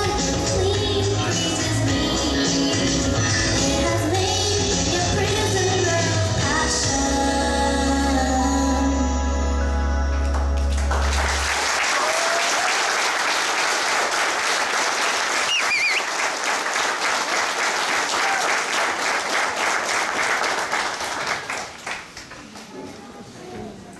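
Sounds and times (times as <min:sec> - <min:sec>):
song music: 0:00.0 - 0:11.5
audience applauding: 0:10.2 - 0:22.7.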